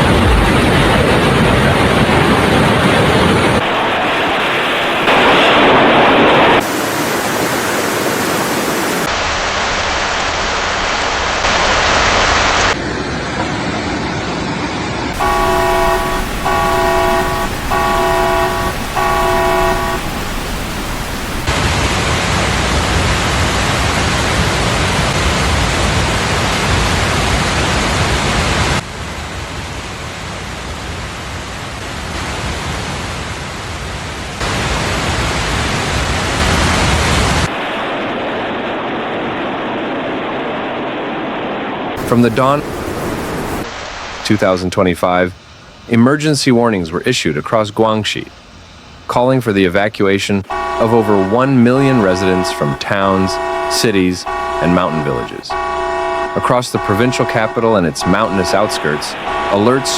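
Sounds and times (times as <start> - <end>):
floodwater rushing: 0.0 - 12.8, 15.1 - 28.8, 31.2 - 41.2, 41.9 - 45.0, 50.4 - 59.9
vehicle horn honking: 15.2 - 21.5, 50.5 - 59.9.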